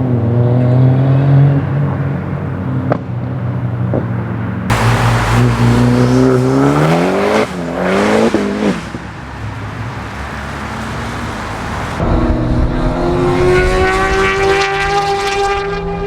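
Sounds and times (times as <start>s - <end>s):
car engine accelerating hard: 4.7s - 16.0s.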